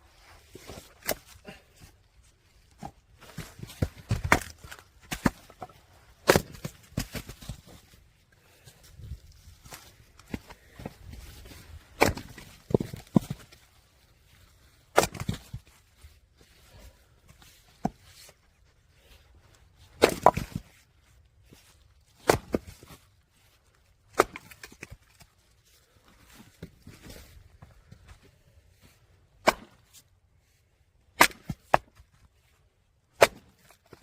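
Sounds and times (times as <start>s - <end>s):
axe chopping firewood: 0.6s - 1.6s, 2.8s - 7.6s, 12.0s - 13.5s, 14.9s - 15.6s, 20.0s - 20.7s, 22.2s - 23.0s, 24.1s - 25.2s, 29.4s - 30.0s, 31.2s - 32.0s, 33.1s - 34.0s
log splitting crack: 2.8s - 7.6s, 12.0s - 13.5s, 14.9s - 15.6s, 20.0s - 20.7s, 22.2s - 23.0s, 24.1s - 25.3s, 29.4s - 30.0s, 31.2s - 32.1s, 33.2s - 34.0s.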